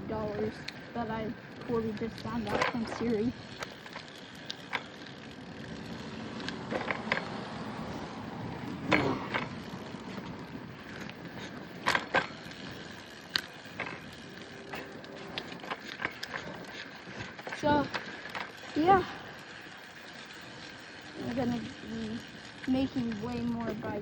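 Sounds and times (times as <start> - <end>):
bicycle knocks and rattles: 0.0 - 24.0
bicycle rolling: 0.0 - 24.0.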